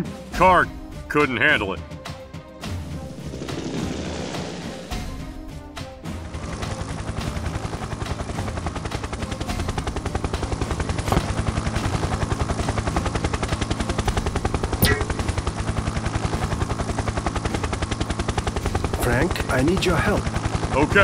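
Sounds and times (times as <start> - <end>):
helicopter rotor chopping: 2.6 - 21.0
sharp knock: 14.8 - 15.2.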